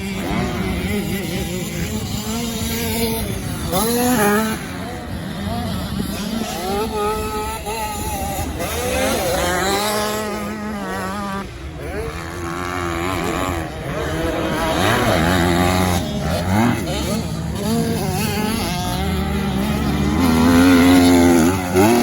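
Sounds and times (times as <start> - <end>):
motocross motorcycle engines revving: 0.0 - 22.0.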